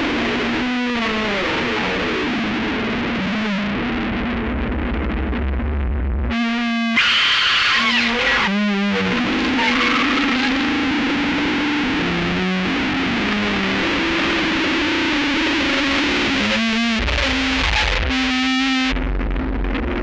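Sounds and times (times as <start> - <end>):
distorted guitar and synthesizer: 0.0 - 20.0
deep bass: 2.6 - 6.6, 8.2 - 20.0.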